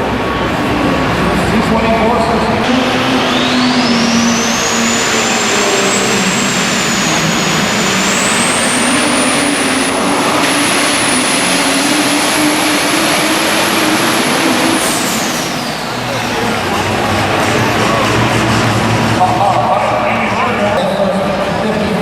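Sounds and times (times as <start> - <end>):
diesel engine drone: 0.0 - 22.0
turbo whine: 2.6 - 20.1.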